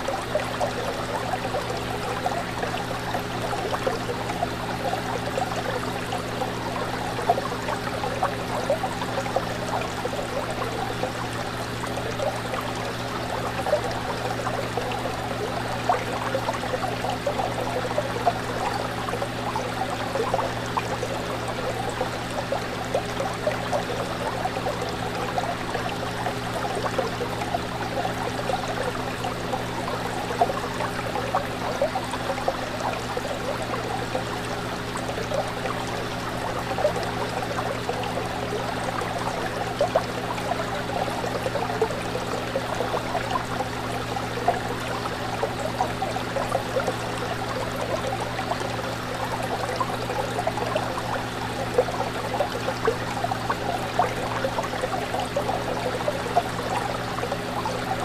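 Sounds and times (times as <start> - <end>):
fish tank water bubbling: 0.0 - 58.0.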